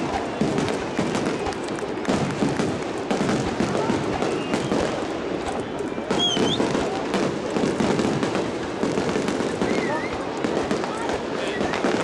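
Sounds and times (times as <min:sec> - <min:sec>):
crowd noise: 0:00.0 - 0:12.0
fireworks bangs: 0:00.0 - 0:12.0
high whistle: 0:06.0 - 0:06.7.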